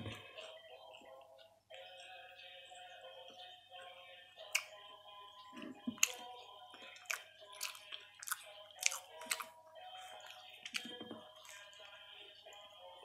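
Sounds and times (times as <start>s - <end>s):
background music: 0.0s - 13.0s
crunchy chewing of toasted bread: 4.1s - 13.0s.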